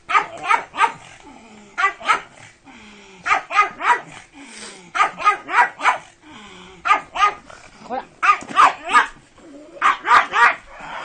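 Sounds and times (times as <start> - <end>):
dog barking: 0.1 - 1.1, 1.8 - 2.4, 3.2 - 4.2, 5.0 - 6.1, 6.8 - 7.4, 8.2 - 9.2, 9.8 - 10.6.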